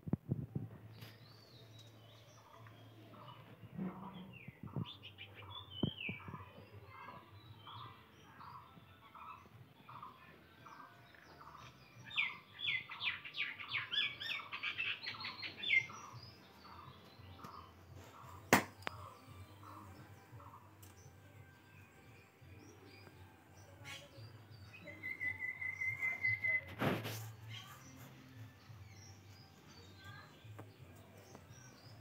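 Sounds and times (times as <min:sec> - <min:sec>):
sharp knock: 0:18.5 - 0:18.8.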